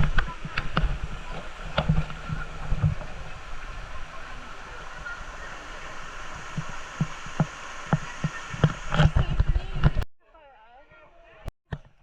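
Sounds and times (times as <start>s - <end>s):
river water flowing: 0.0s - 10.0s
thumps on microphone: 6.5s - 10.0s.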